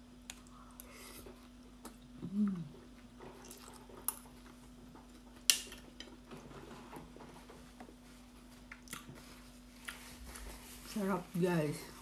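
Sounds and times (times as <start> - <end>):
person chewing: 0.3 - 4.6, 8.7 - 10.4
person humming briefly: 2.2 - 2.8.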